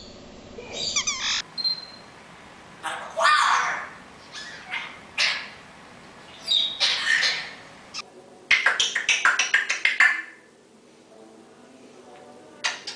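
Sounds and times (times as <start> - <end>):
parrot squawks: 0.7 - 2.1, 2.8 - 5.6, 6.3 - 8.0.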